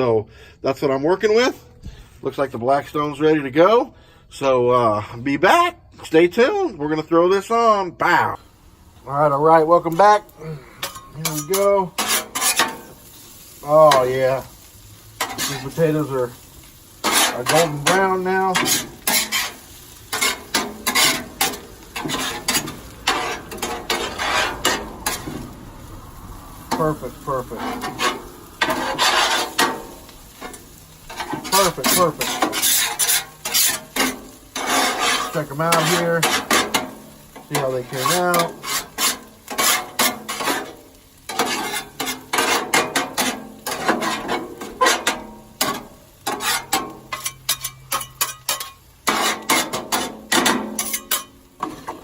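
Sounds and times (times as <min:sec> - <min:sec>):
food sizzling: 0:05.5 - 0:52.0
spatula scraping griddle: 0:08.8 - 0:52.0.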